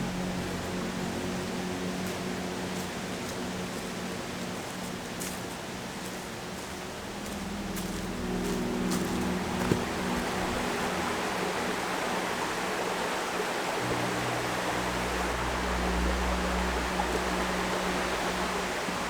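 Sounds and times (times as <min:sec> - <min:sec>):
low sustained tones: 0:06.8 - 0:19.0.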